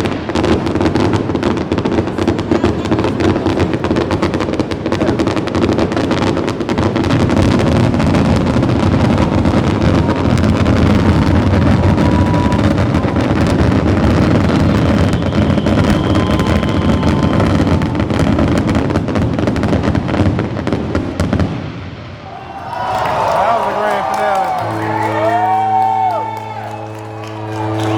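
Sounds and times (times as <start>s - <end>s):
fireworks crackling and banging: 0.0s - 27.9s
firework whistles: 0.9s - 20.2s, 23.8s - 27.9s.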